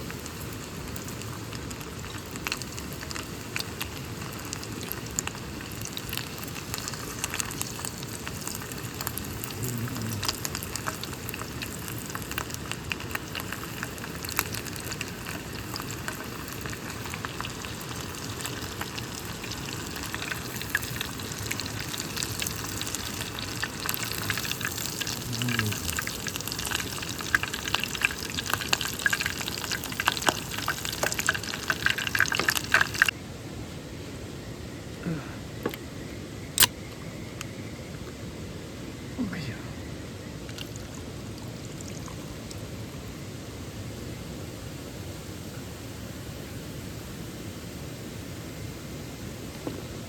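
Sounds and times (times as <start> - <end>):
food sizzling in a pan: 0.0 - 33.1.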